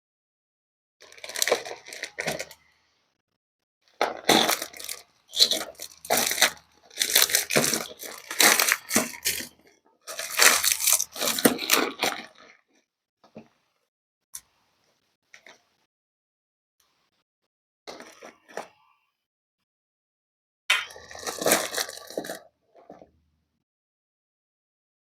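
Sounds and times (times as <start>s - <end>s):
packaging crinkling and tearing: 1.0s - 2.6s, 4.0s - 9.5s, 10.1s - 12.5s, 21.0s - 22.4s.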